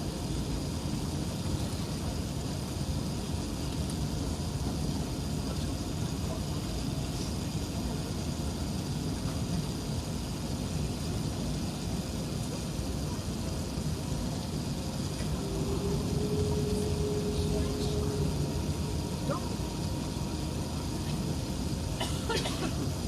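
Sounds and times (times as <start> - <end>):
airplane cabin rumble and hiss: 0.0 - 23.0
steady hum: 0.0 - 23.0.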